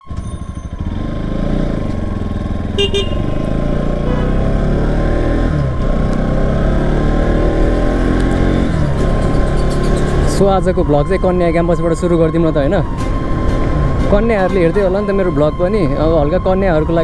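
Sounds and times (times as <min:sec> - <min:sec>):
motorcycle engine running: 0:00.0 - 0:17.0
horn beeps: 0:01.8 - 0:05.8.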